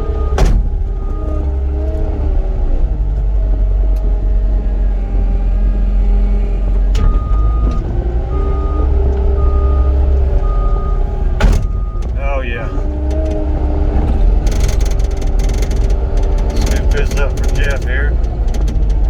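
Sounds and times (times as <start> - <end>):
diesel engine rumbling: 0.0 - 19.0
sharp clunk: 0.4 - 1.1, 11.4 - 12.2
backup alarm beeping: 7.0 - 13.0.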